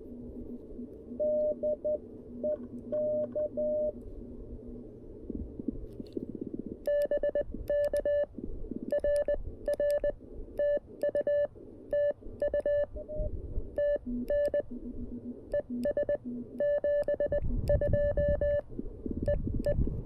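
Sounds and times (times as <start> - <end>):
morse code beeps: 1.2 - 4.0, 6.8 - 8.3, 8.9 - 18.7, 19.3 - 19.8.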